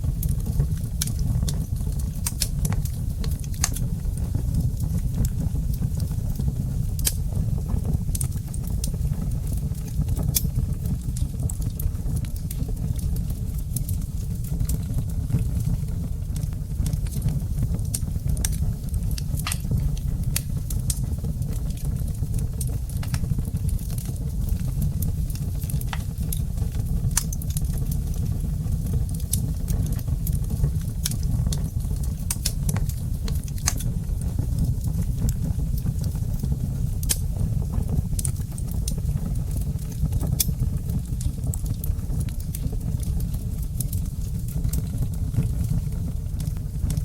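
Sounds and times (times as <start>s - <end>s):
low rumble of fire: 0.0s - 47.0s
wood fire crackling and popping: 0.0s - 47.0s.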